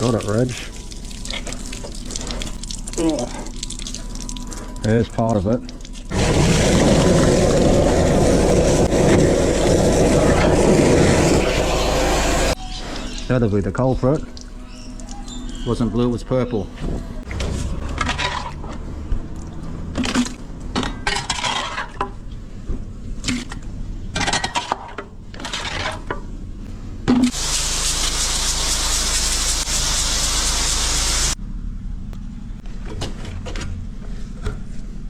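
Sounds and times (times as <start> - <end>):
rushing water hiss: 6.1 - 12.6, 27.3 - 31.4.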